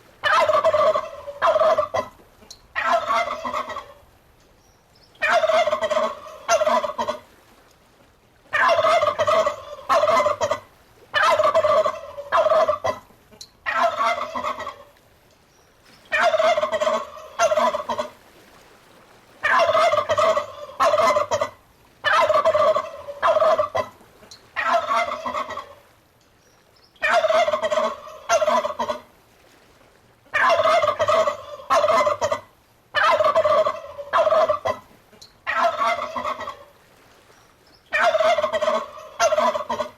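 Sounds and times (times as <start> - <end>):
turkey gobbling: 0.2 - 2.1, 2.8 - 4.0, 5.2 - 7.2, 8.5 - 14.9, 16.1 - 18.2, 19.4 - 23.9, 24.6 - 25.8, 27.0 - 29.0, 30.3 - 34.8, 35.4 - 36.7, 37.9 - 39.9.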